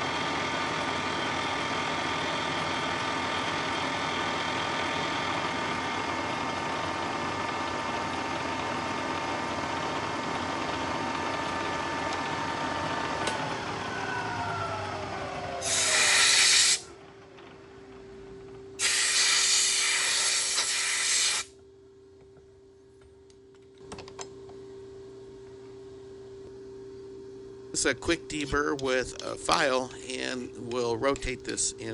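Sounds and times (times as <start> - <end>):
milling machine spindle whine: 0.0 - 19.4
hissing air bursts: 15.6 - 16.9, 18.8 - 21.5.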